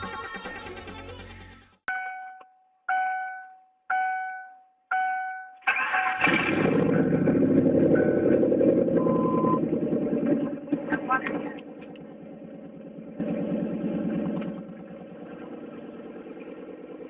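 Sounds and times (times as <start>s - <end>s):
dashboard warning chimes: 1.9s - 5.6s
car engine cranking and idling: 5.6s - 17.0s.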